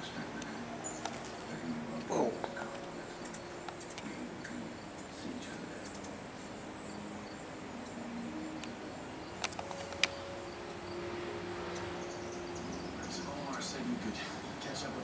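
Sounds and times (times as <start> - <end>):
outdoor background hum: 0.0 - 15.0
sharp clicks: 9.4 - 10.2.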